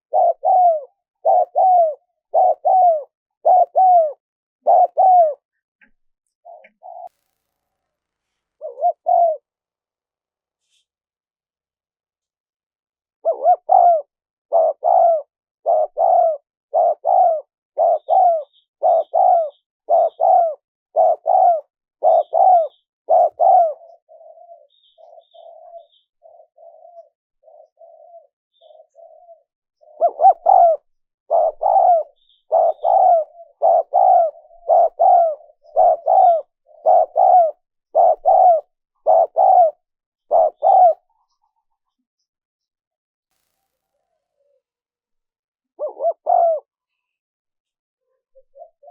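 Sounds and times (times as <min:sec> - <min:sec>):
dove cooing: 0:00.0 - 0:05.5, 0:06.4 - 0:07.1, 0:08.6 - 0:09.5, 0:13.2 - 0:41.9, 0:45.7 - 0:47.1, 0:48.0 - 0:48.9.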